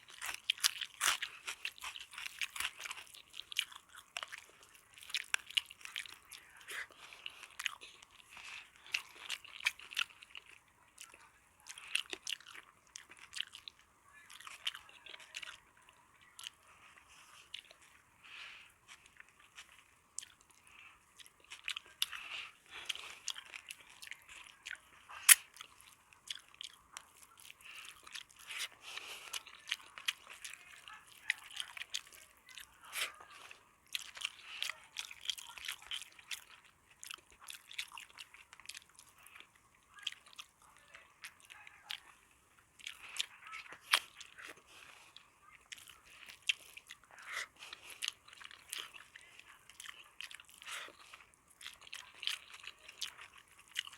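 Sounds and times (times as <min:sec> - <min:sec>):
person chewing food: 0:00.0 - 0:53.9.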